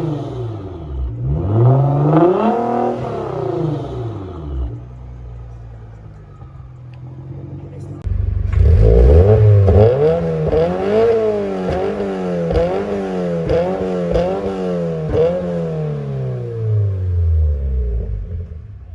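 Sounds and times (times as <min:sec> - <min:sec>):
car engine revving: 0:00.0 - 0:18.9
exhaust cracks: 0:07.8 - 0:18.9.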